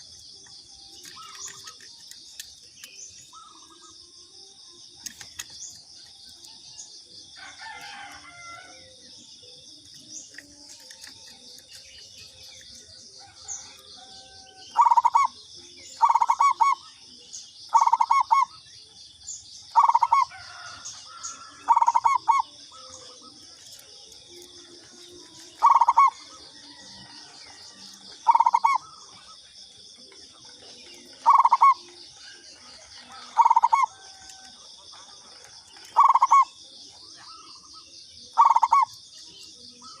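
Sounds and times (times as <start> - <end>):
dove cooing: 7.4 - 18.6, 19.7 - 29.4, 30.0 - 40.0.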